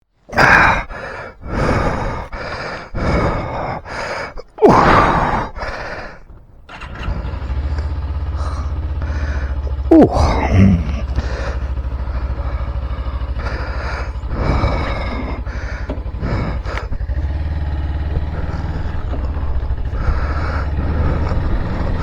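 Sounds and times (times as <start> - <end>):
motorcycle engine idling: 6.2 - 22.0.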